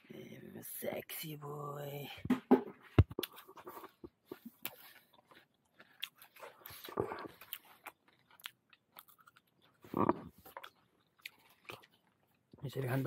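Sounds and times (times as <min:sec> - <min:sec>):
person chewing crunchy food: 0:03.1 - 0:12.6.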